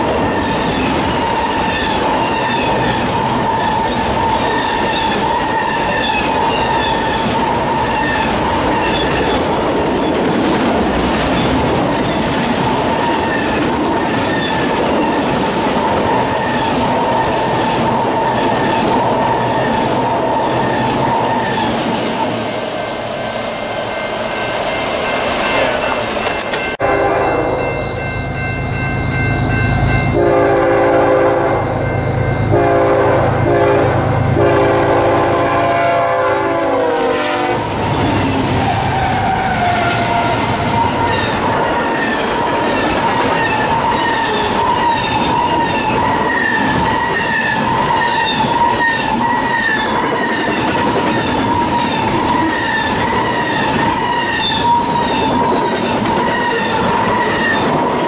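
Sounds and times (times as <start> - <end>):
high wheel squeal: 0.0 - 10.3, 11.2 - 30.3, 37.8 - 58.0
wheels clacking over rail joints: 0.0 - 22.4, 37.6 - 58.0
locomotive air horn blasts: 26.8 - 27.8, 30.1 - 37.8.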